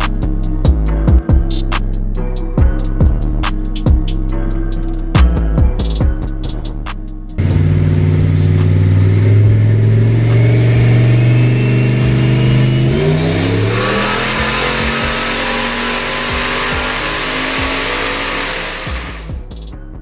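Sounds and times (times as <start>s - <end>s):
rushing noise: 7.4s - 19.4s
engine accelerating: 7.4s - 19.5s
turbo whistle: 7.9s - 19.4s.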